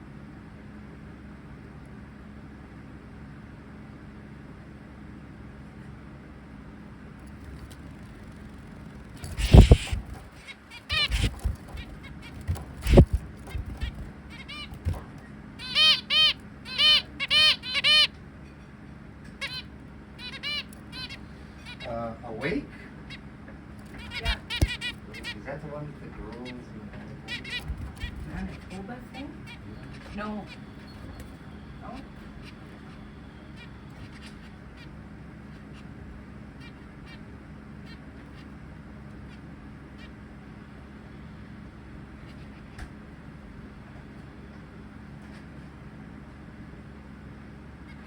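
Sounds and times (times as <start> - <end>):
steady low hum: 0.0 - 48.0
finches calling: 7.4 - 42.9, 47.7 - 48.0.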